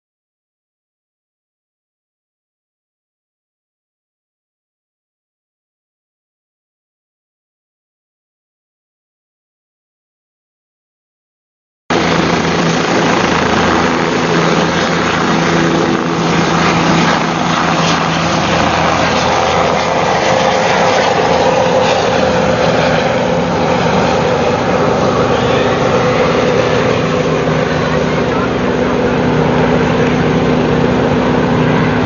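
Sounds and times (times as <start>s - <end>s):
aircraft engine drone: 11.9s - 32.0s.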